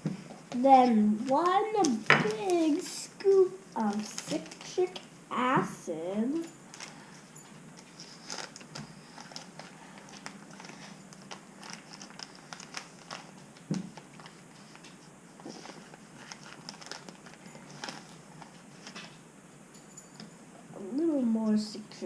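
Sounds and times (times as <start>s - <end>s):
scooping powder crinkling: 7.8s - 14.8s, 15.4s - 18.9s.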